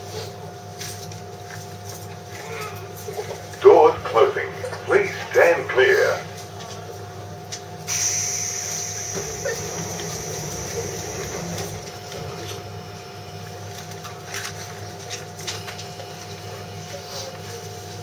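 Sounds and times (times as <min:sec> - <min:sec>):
steady hum: 0:03.0 - 0:16.5.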